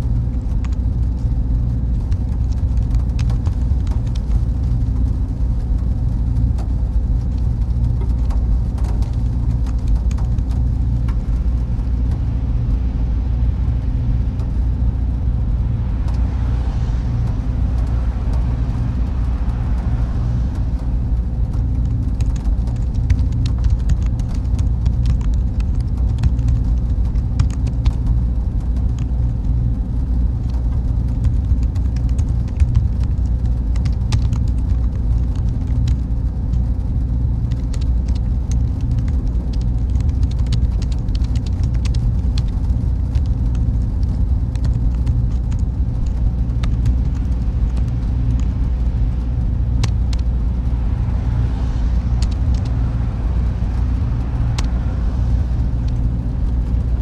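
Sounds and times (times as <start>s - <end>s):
cooling fans humming: 0.0s - 57.0s
faint constant tone: 0.0s - 57.0s
small clicks: 37.5s - 48.6s.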